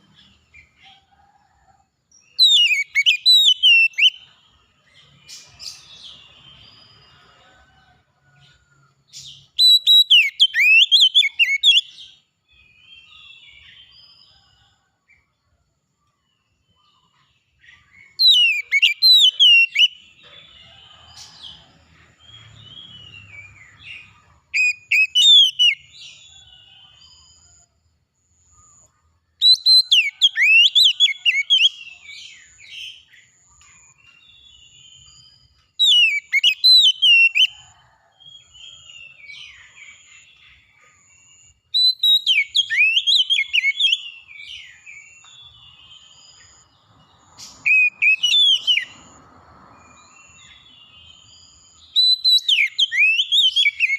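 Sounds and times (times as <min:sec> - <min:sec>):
songbird whistled phrases: 0:02.4 - 0:04.3, 0:09.6 - 0:12.0, 0:18.2 - 0:20.0, 0:24.6 - 0:25.9, 0:41.8 - 0:44.2, 0:52.0 - 0:53.9.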